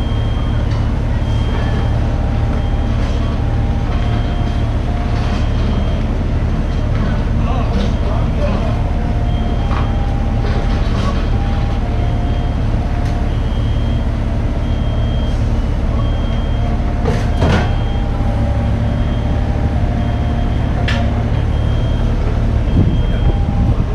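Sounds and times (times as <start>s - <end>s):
diesel engine running: 0.0s - 23.9s
warning alarm beeping: 0.0s - 23.9s.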